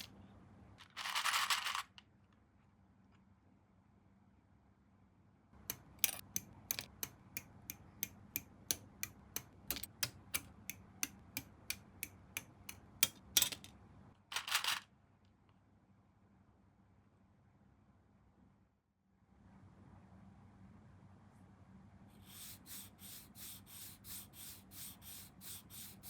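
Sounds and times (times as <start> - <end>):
sharp evenly spaced clicks: 5.7 - 13.2.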